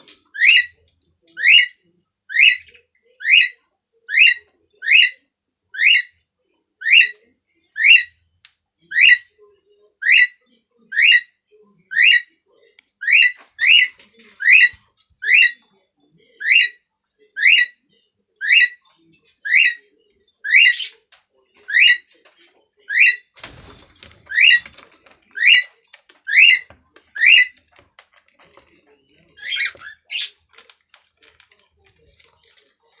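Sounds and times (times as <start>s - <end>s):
rustling: 23.4s - 33.0s
cockatiel chirping: 26.3s - 27.8s.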